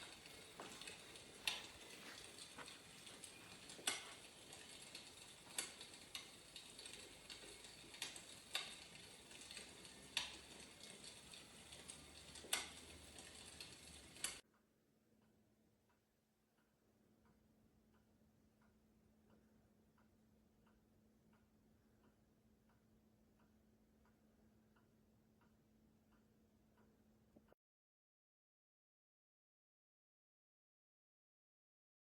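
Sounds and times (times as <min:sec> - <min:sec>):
fire crackling: 0:00.0 - 0:14.4.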